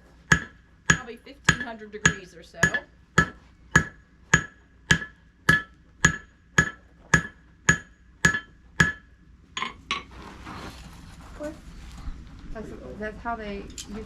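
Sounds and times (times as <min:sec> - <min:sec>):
hammer striking iron on anvil: 0:00.3 - 0:10.0.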